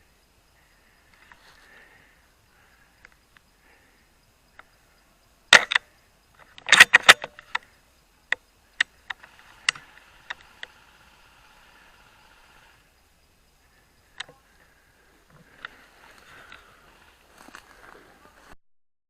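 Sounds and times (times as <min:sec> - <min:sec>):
sharp clicks and knocks: 0:06.4 - 0:07.7.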